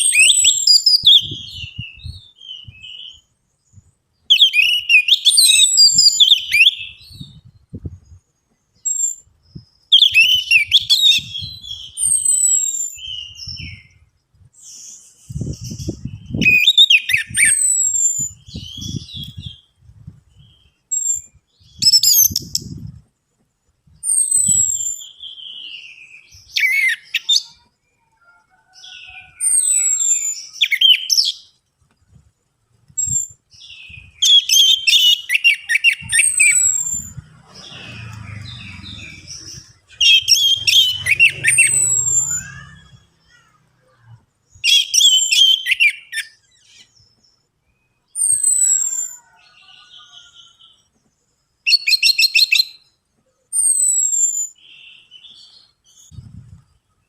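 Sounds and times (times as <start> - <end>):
thrush singing whistles and rattles: 0.0 - 23.1, 23.8 - 27.7, 28.8 - 43.4, 44.5 - 49.4, 51.6 - 56.8
faint low rumble: 36.6 - 43.3.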